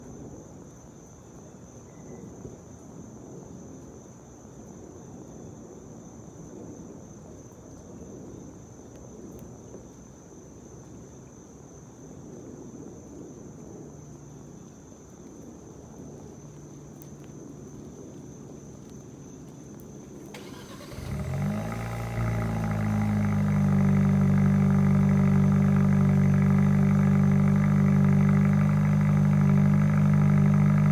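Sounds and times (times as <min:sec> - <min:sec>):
car engine starting and idling: 0:20.3 - 0:30.9.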